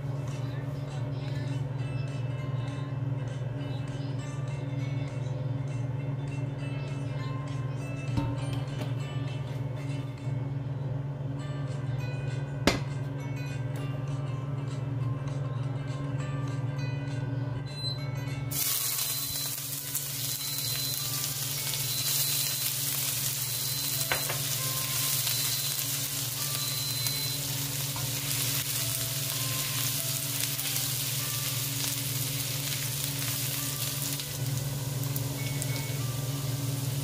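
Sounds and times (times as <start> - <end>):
rice cooker beeping tune: 17.6 - 37.0
garlic sizzling in hot oil: 18.5 - 37.0.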